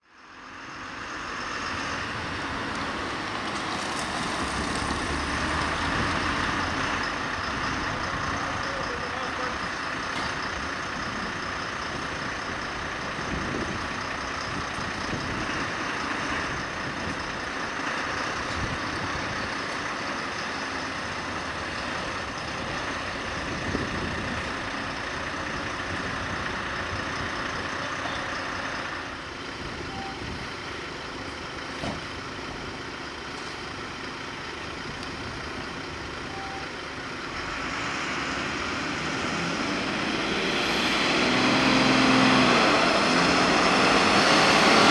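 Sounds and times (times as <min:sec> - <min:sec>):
fire engine running: 0:00.0 - 0:44.9.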